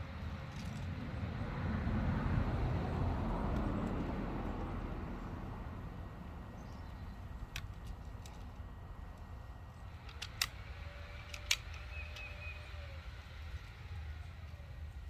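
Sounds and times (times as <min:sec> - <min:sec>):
vehicle passing by: 0:00.0 - 0:07.4.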